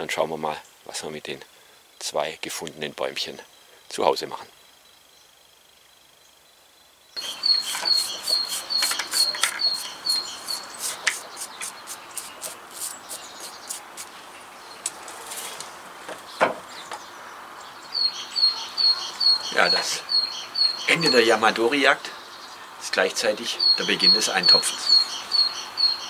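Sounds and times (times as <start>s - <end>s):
small bird chirping: 2.8s - 15.2s, 16.2s - 26.0s
hands handling plastic pot: 7.5s - 10.3s.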